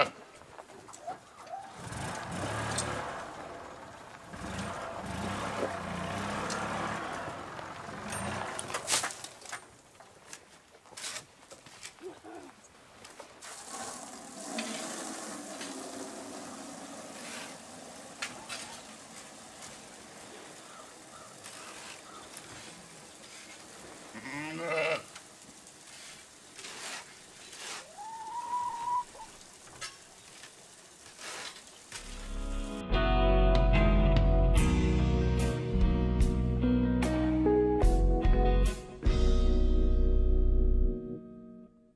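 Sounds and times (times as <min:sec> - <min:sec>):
livestock bleating: 0:24.1 - 0:25.2.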